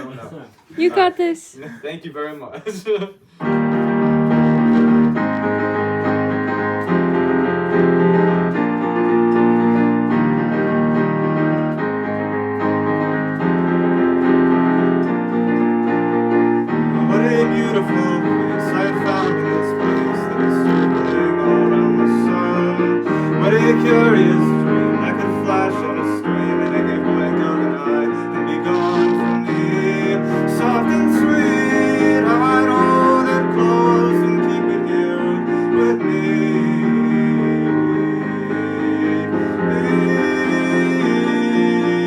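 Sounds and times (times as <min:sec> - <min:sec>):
keyboard playing slow chords: 0:03.4 - 0:42.0
wavering higher keyboard part: 0:03.6 - 0:35.0.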